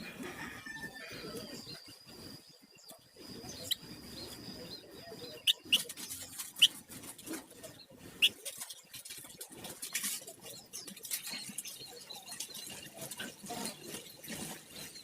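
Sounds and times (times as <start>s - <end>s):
songbird sharp chirps: 1.2s - 7.0s.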